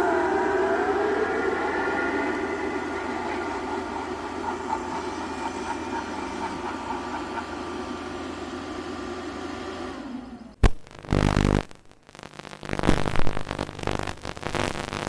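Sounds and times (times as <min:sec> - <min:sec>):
animatronic mechanical whir: 0:00.0 - 0:10.6.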